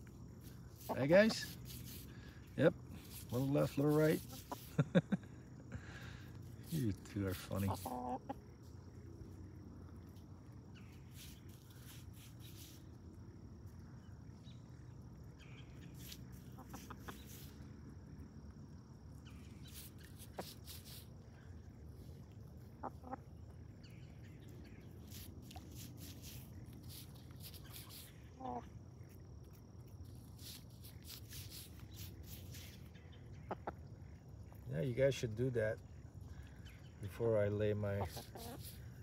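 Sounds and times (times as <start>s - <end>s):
poultry calling: 7.5s - 8.4s, 16.3s - 17.4s, 22.6s - 24.0s, 26.8s - 28.8s, 32.2s - 33.9s, 37.9s - 38.8s.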